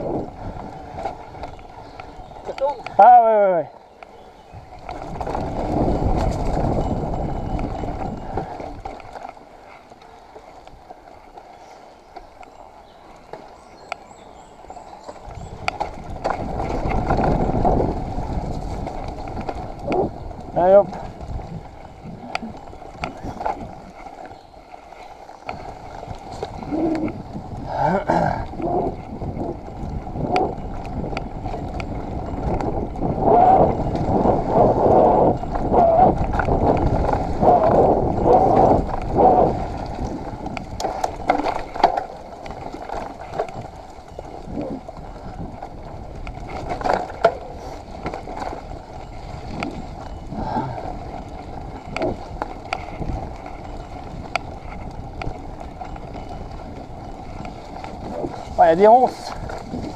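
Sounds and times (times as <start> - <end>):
bike rattling: 0.0 - 59.9
bike tyres on muddy trail: 0.0 - 59.9.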